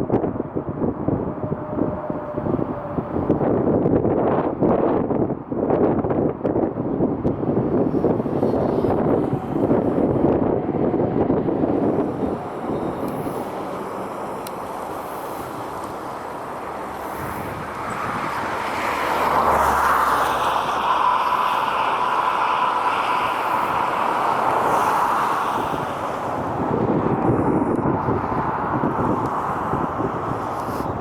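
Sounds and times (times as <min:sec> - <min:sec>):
wind buffeting microphone: 0:00.0 - 0:31.0
rushing noise: 0:07.3 - 0:31.0
jet engines whining: 0:07.8 - 0:31.0.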